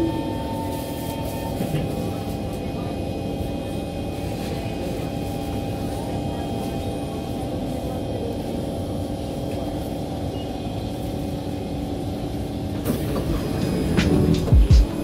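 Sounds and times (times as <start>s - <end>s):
train equipment humming: 0.0s - 15.0s
train doors hissing and rattling: 12.2s - 15.0s.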